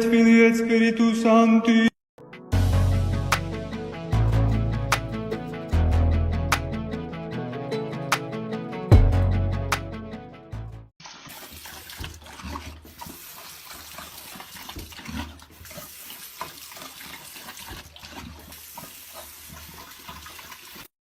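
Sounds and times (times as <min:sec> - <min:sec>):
guitar music: 0:02.2 - 0:10.9
water running and splashing: 0:11.0 - 0:21.0.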